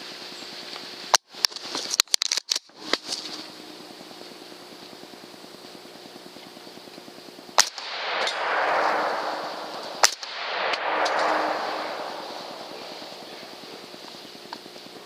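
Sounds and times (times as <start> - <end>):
gunshots: 7.6 - 14.2.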